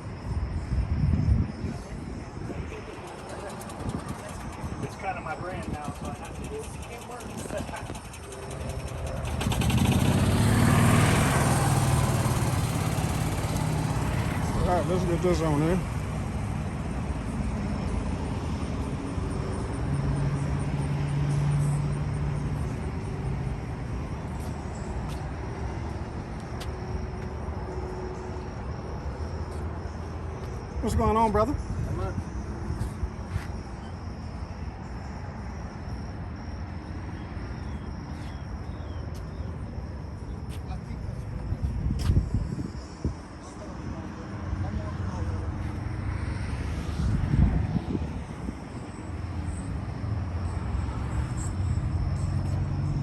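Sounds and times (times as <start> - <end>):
vehicle engine running: 2.7 - 17.4.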